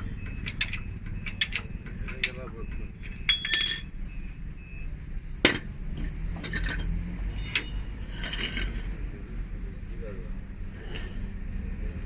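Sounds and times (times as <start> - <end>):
metal tools clanking: 0.2 - 4.0, 5.4 - 9.0.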